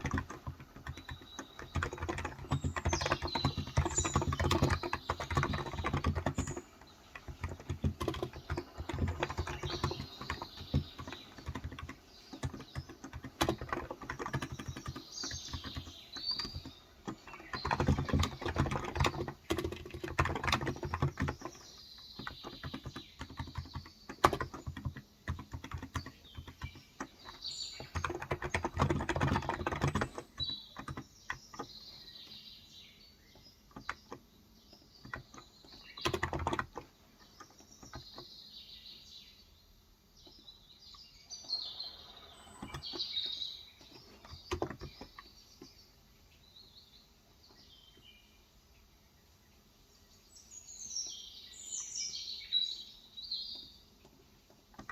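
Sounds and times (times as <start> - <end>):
fast typing on keyboard: 0.0 - 31.9, 33.6 - 38.3, 41.7 - 45.3
birds chirping: 0.0 - 54.9.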